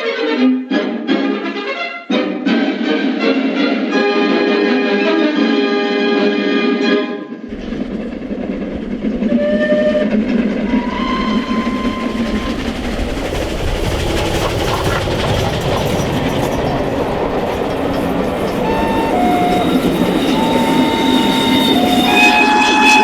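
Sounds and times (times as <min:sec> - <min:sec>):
steam train rumbling on track: 0:06.3 - 0:23.0.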